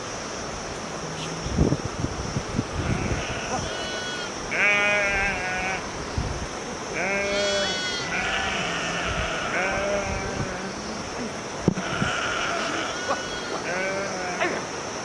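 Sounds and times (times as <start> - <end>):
sheep bleating: 2.8 - 5.8, 7.0 - 10.7, 11.8 - 14.6.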